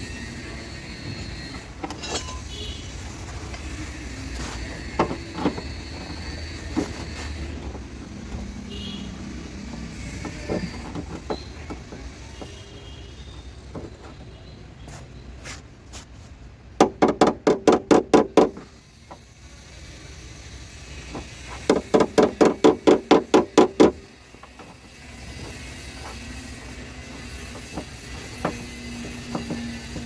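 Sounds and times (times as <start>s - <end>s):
rapid knocks: 21.7s - 24.0s.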